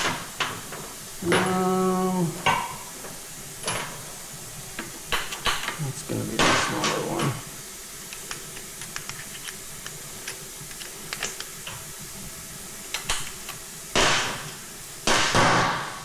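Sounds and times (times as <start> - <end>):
loud hissing bursts: 5.7 - 8.1.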